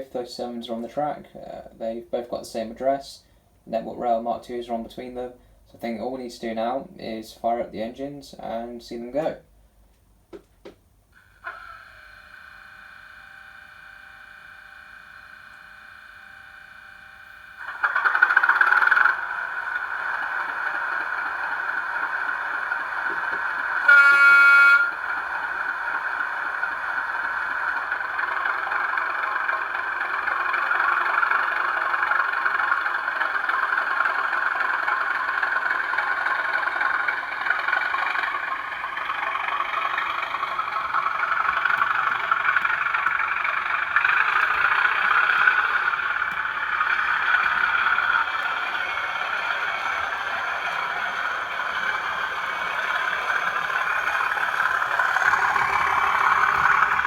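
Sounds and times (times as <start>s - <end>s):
diesel engine sound running: 11.0s - 57.0s
steady whining tone: 11.2s - 57.0s
locomotive horn blast: 23.0s - 27.4s.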